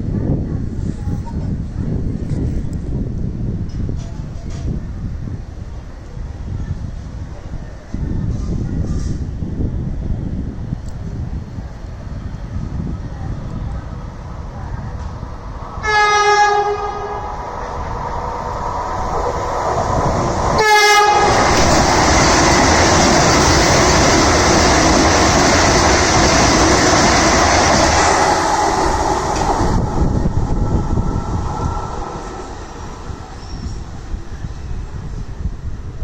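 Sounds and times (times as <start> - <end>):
train wheel and rail noise: 0.0 - 36.0
train horn blast: 15.8 - 17.4, 20.6 - 21.7.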